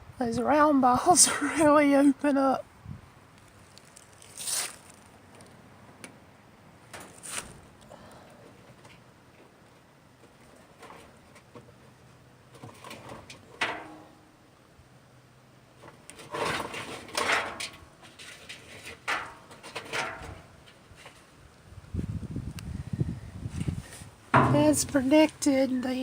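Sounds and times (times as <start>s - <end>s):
objects scraping and knocking: 10.2s - 14.1s, 15.8s - 21.3s, 23.5s - 25.4s.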